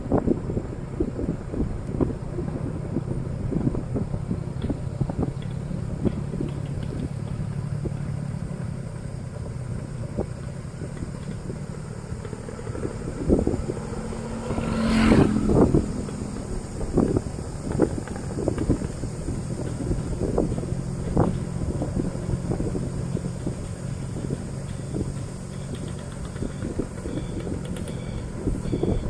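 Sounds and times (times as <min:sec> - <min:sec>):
motorcycle engine running: 0:00.0 - 0:29.0
loud rush: 0:11.5 - 0:17.7.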